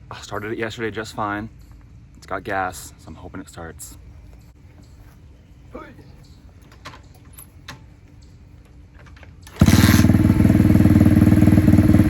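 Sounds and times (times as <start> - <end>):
dirt bike engine running: 9.6 - 12.0.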